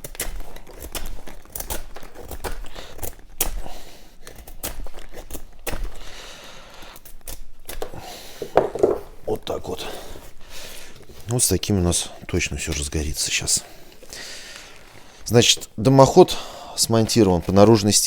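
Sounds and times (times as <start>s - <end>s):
firewood cracking and splintering: 0.0s - 6.1s, 7.0s - 9.6s.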